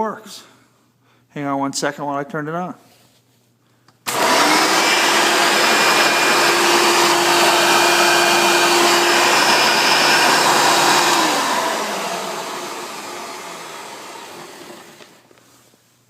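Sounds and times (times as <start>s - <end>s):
vacuum cleaner motor whining: 4.1s - 15.4s.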